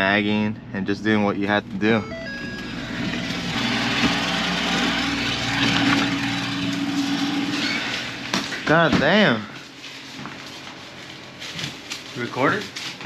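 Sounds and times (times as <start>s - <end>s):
steady hum: 0.0s - 12.8s
engine running: 0.3s - 8.6s.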